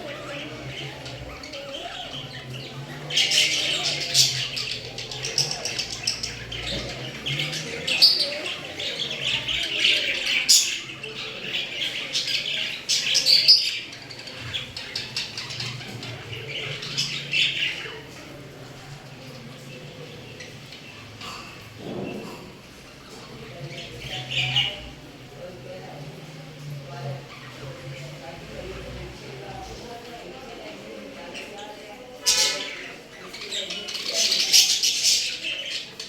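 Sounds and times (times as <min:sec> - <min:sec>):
parrots squawking: 0:00.0 - 0:18.3, 0:32.2 - 0:36.0.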